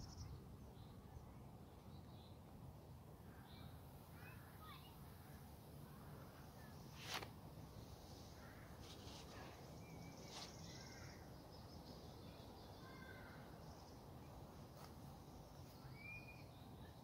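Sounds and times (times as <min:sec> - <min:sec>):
distant bird calls: 0:07.8 - 0:14.4.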